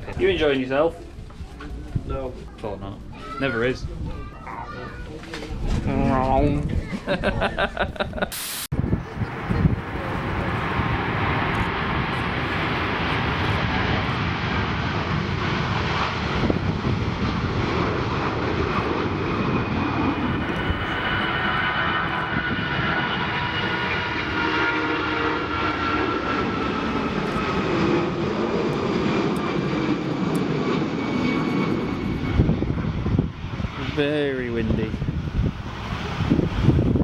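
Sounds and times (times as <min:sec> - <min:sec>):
jet airliner passing: 0:08.7 - 0:37.0
wind buffeting microphone: 0:08.7 - 0:37.0.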